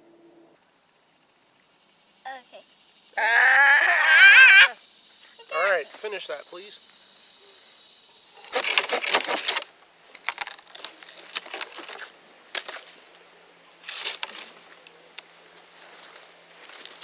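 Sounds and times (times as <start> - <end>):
crunching crackling rustle: 8.4 - 17.0.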